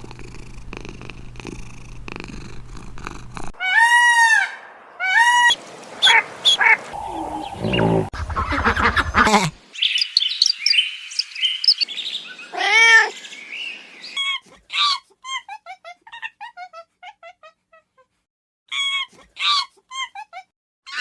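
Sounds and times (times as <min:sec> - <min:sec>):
cat purring: 0:00.0 - 0:03.5, 0:07.0 - 0:08.1.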